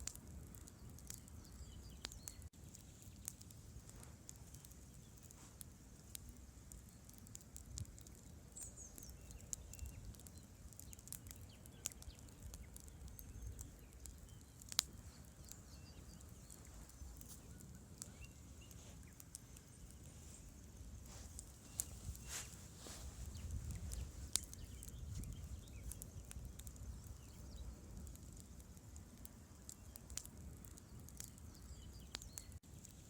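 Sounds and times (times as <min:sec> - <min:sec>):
campfire crackling: 0:00.0 - 0:33.0.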